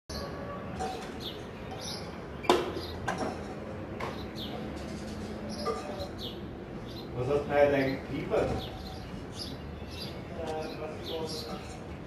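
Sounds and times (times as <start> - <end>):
sharp knocks: 2.5 - 4.3.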